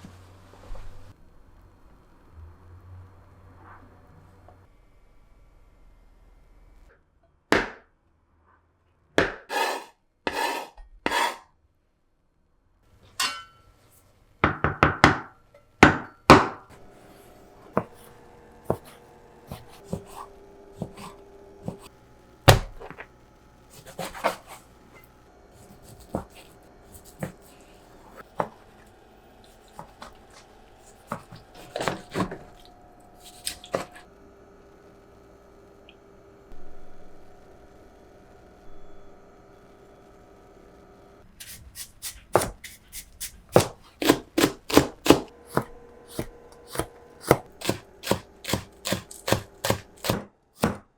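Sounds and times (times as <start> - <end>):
kitchen tool scraping: 9.4 - 11.5, 16.7 - 21.9, 23.7 - 28.6, 29.4 - 34.0, 41.4 - 50.8
kitchen tools knocking and clicking: 13.1 - 13.6.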